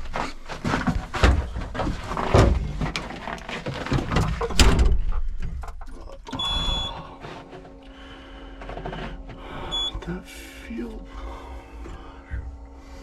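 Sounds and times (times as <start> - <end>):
scraping: 0.0 - 10.2
thumps and knocks: 0.5 - 6.0.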